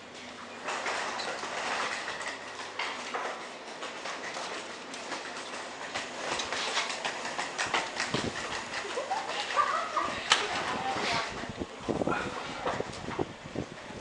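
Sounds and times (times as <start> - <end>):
train wheels clattering: 0.6 - 11.2.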